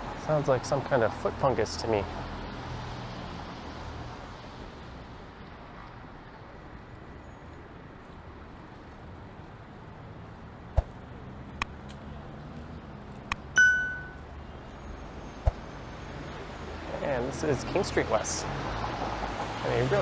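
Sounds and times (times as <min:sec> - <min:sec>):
street traffic noise: 0:00.0 - 0:20.0
bright bell ding: 0:13.3 - 0:14.2.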